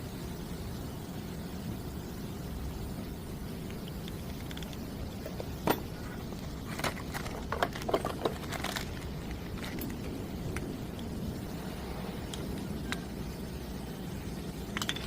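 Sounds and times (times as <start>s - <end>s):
sharp clicks and knocks: 3.7s - 11.1s.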